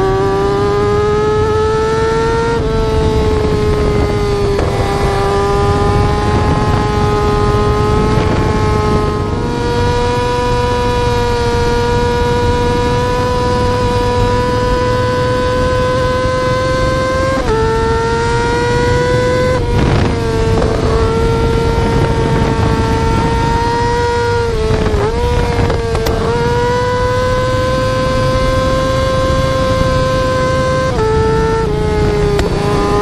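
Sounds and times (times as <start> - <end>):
motorcycle engine at high revs: 0.0 - 33.0.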